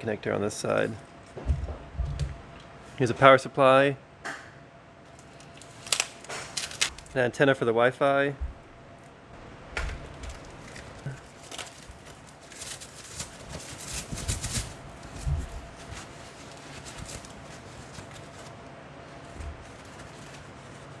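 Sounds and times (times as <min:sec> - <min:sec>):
packaging crinkling: 0:05.1 - 0:07.2, 0:09.4 - 0:21.0.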